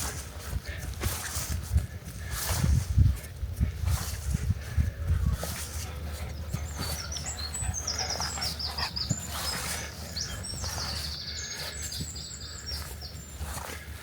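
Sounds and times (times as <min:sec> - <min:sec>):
songbird singing trills: 0:05.8 - 0:13.6.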